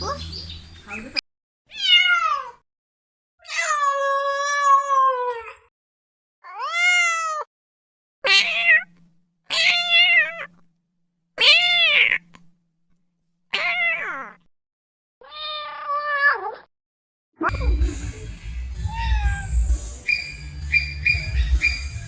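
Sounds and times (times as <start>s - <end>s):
cat meowing: 1.7s - 2.6s, 6.4s - 7.5s, 8.2s - 8.9s, 9.5s - 10.6s, 11.4s - 12.3s, 13.5s - 14.4s, 15.2s - 16.7s, 18.8s - 19.6s.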